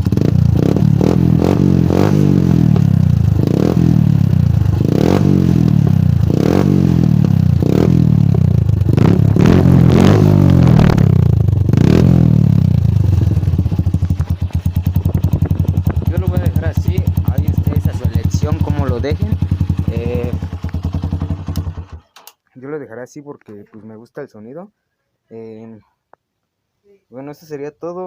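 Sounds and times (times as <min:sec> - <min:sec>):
motorcycle engine revving: 0:00.0 - 0:22.2.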